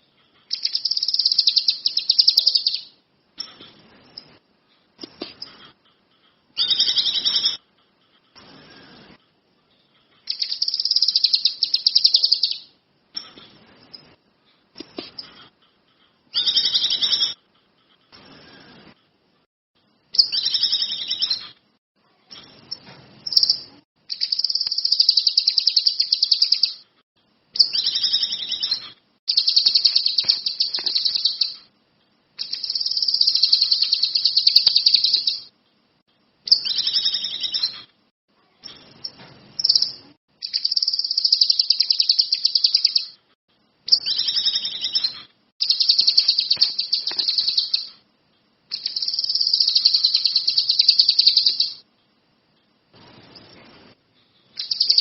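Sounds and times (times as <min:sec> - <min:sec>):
songbird trilling: 0:00.5 - 0:02.9, 0:39.6 - 0:43.1, 0:54.6 - 0:55.0.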